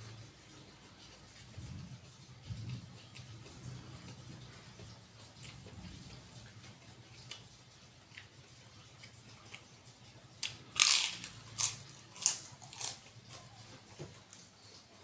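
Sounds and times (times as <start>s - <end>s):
soft chewing: 0.0s - 15.0s
cracker crunching: 10.4s - 14.5s.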